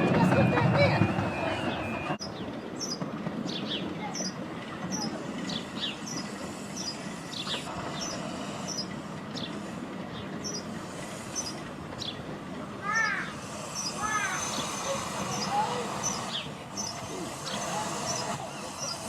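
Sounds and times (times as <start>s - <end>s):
small bird chirping: 1.7s - 12.2s.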